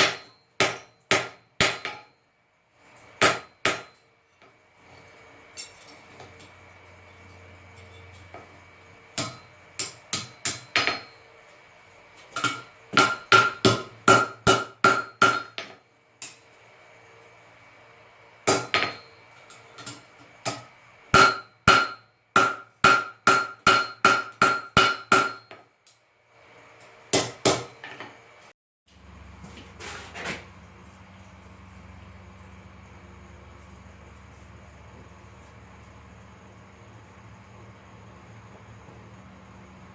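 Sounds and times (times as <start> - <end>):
hammer striking steel on anvil: 0.0 - 2.1, 3.2 - 4.0, 9.2 - 11.2, 12.4 - 16.4, 18.5 - 25.6, 27.1 - 28.1.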